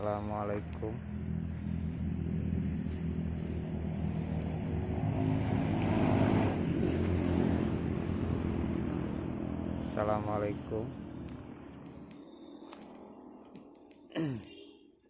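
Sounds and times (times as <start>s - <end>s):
vehicle engine passing: 0.0s - 13.8s.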